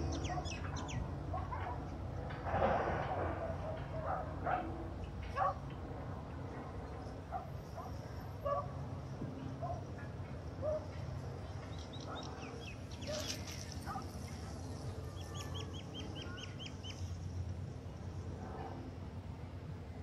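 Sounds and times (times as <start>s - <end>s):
birds chirping: 0.0s - 1.7s, 11.4s - 17.2s.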